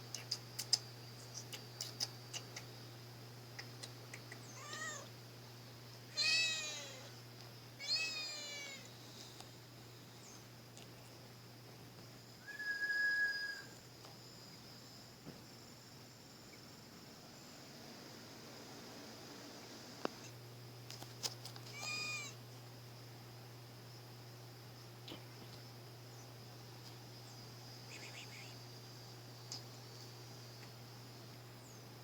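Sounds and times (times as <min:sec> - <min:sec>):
sharp clicks: 0:00.1 - 0:02.7
cat meowing: 0:04.5 - 0:05.1, 0:06.2 - 0:07.1, 0:07.8 - 0:08.9, 0:21.7 - 0:22.4.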